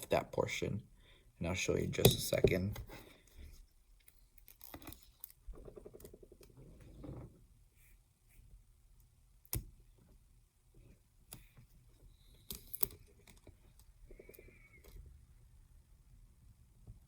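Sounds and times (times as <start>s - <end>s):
small tools and tape clicking: 11.2s - 15.0s.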